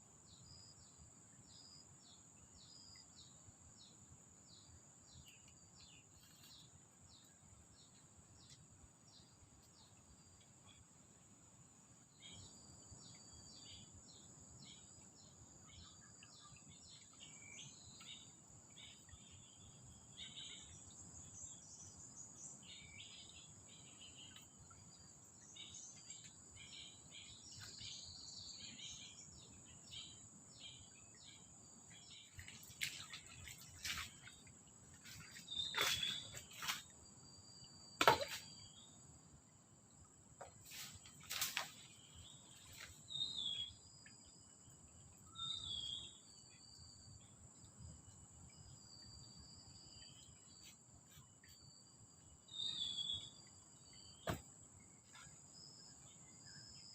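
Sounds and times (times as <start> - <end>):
birds chirping: 12.2 - 37.0.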